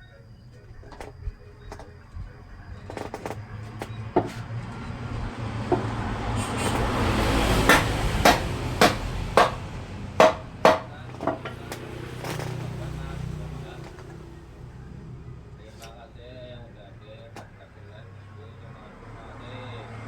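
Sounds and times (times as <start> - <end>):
sharp knocks: 5.7 - 12.6.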